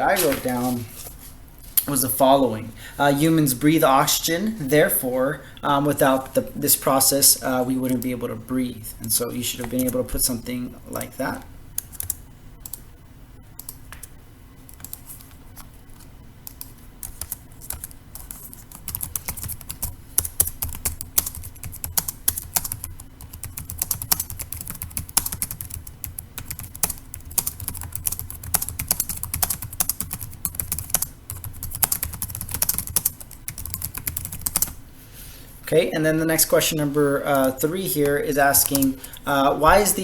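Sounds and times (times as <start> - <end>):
keyboard typing clicks: 11.8 - 12.8, 13.6 - 14.1.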